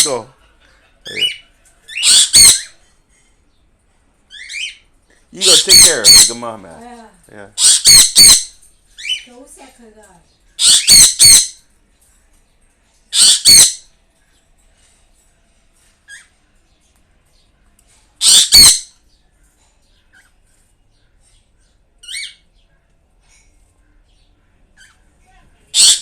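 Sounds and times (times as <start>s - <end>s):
birds squawking harshly: 0.0s - 2.8s, 4.3s - 6.7s, 7.5s - 9.3s, 10.5s - 11.6s, 13.1s - 13.9s, 18.2s - 19.1s, 22.0s - 22.5s, 25.7s - 26.0s.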